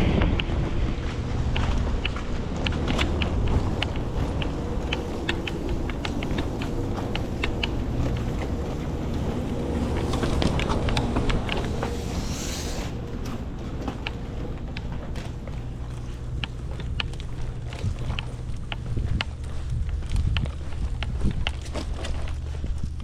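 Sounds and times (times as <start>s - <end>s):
truck engine rumbling: 0.0s - 19.1s
sharp clicks and rattles: 0.1s - 12.0s
air hiss: 11.5s - 13.1s.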